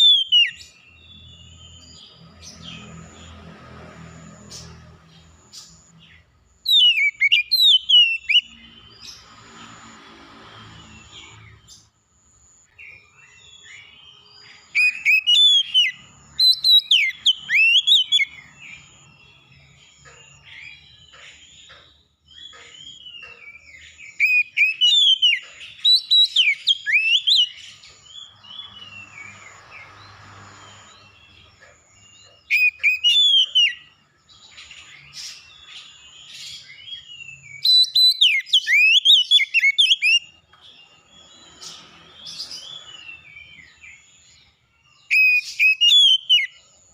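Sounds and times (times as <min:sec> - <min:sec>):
songbird whistled phrases: 0:00.0 - 0:00.6, 0:06.7 - 0:08.5, 0:14.8 - 0:18.4, 0:24.1 - 0:27.6, 0:32.5 - 0:33.9, 0:37.3 - 0:40.3, 0:45.1 - 0:46.6
bird chirps: 0:00.0 - 0:46.9.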